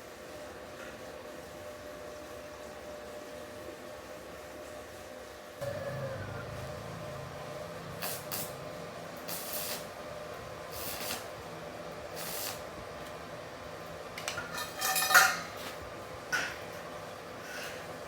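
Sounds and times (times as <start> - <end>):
short hissing bursts: 9.3 - 9.9, 10.7 - 11.3, 12.2 - 12.6
metal parts clinking: 14.2 - 15.6
metallic ring: 14.4 - 15.6.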